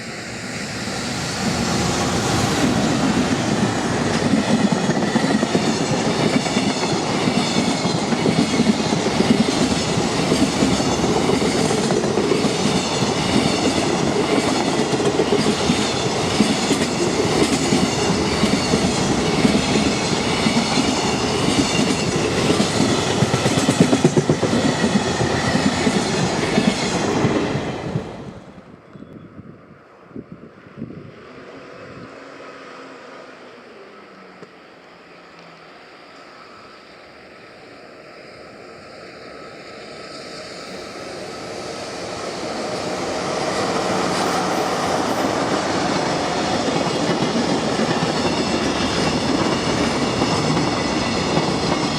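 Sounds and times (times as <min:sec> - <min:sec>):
freight train passing: 0:00.0 - 0:51.9.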